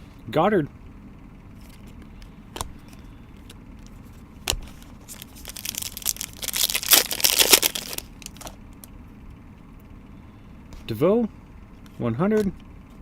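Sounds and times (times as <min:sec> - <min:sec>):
packaging crinkling and rustling: 0:03.9 - 0:08.6.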